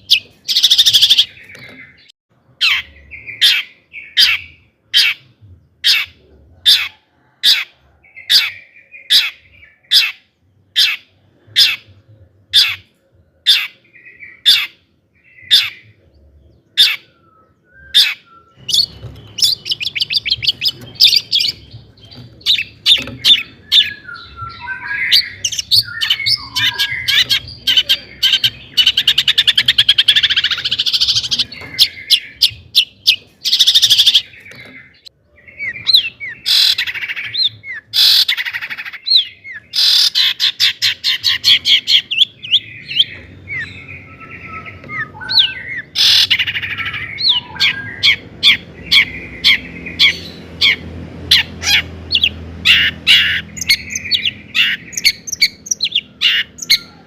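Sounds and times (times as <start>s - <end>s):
bird chirps and trills: 0.0s - 57.0s.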